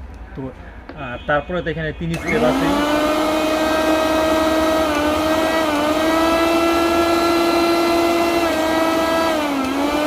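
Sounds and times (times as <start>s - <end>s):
mixer grinder motor whining: 2.1s - 10.0s.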